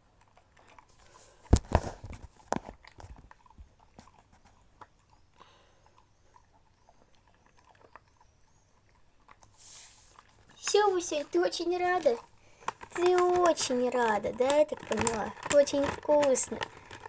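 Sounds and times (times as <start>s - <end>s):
dog chewing: 0.0s - 17.0s
clicks and knocks: 10.6s - 17.0s.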